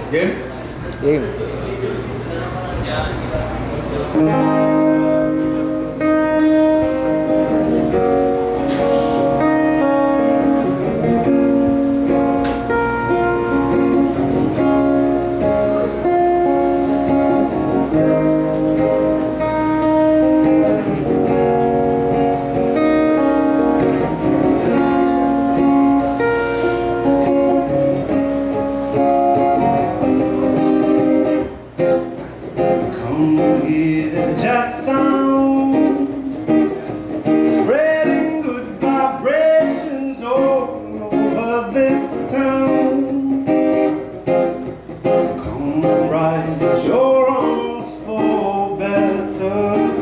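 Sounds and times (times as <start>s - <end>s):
acoustic guitar strumming: 3.0s - 50.0s.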